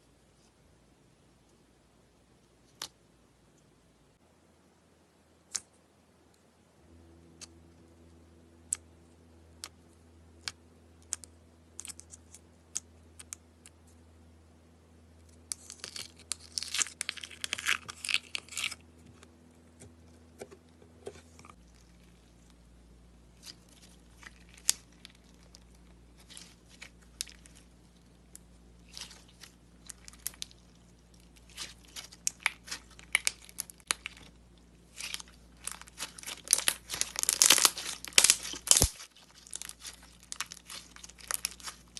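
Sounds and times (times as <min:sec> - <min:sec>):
slime crackling: 0:23.3 - 0:41.9
slime squeezed and stretched: 0:28.8 - 0:41.9.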